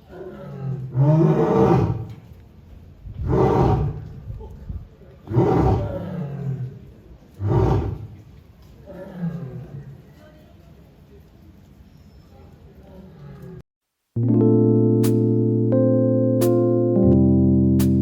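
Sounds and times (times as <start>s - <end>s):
lion roaring: 0.0s - 2.2s, 3.2s - 4.2s, 5.2s - 8.2s, 8.8s - 10.0s
lion moaning calls: 5.2s - 6.8s.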